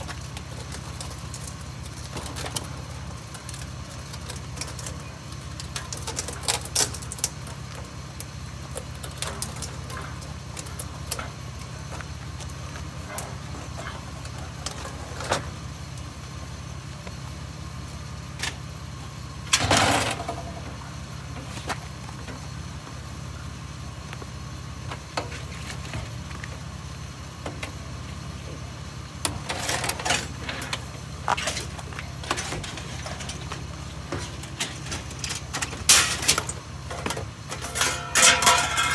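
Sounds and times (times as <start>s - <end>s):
vehicle engine idling: 0.0s - 38.9s
scrap metal clanking: 19.5s - 22.5s, 29.3s - 38.9s.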